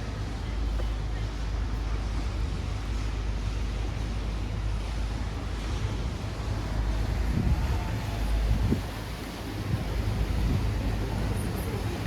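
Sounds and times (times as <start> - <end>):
steady low street rumble: 0.0 - 12.0
faint voices: 7.3 - 12.0.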